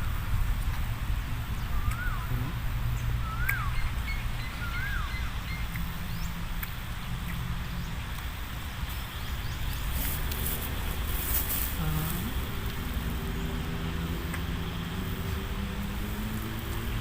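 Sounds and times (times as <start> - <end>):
steady low rumble: 0.0 - 17.0
bird whistling calls: 1.6 - 2.4, 3.2 - 5.6
faint bird chirps: 1.6 - 2.6, 3.2 - 6.3.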